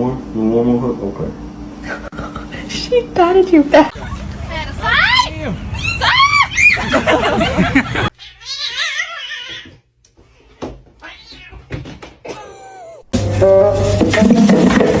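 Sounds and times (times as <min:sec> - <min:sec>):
cat meowing: 0:08.2 - 0:09.8, 0:11.0 - 0:11.7.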